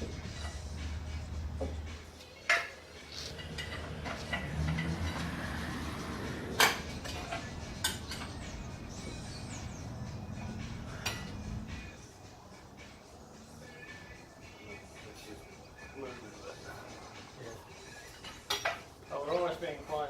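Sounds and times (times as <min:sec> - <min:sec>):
metallic clanks of tools: 0:02.4 - 0:05.3, 0:06.6 - 0:08.5, 0:18.1 - 0:18.9.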